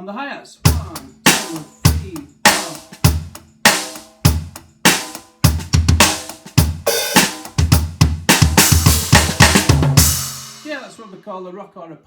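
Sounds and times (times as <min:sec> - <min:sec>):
drum kit rock beat: 0:00.6 - 0:11.2
cymbals ringing: 0:00.7 - 0:05.3, 0:08.8 - 0:11.2.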